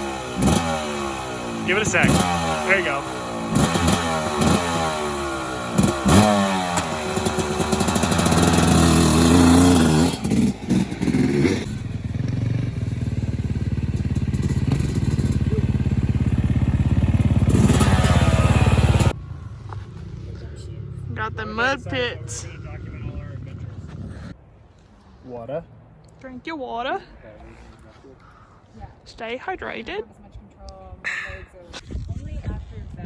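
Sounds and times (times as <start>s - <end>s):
dirt bike engine revving: 0.0s - 24.3s.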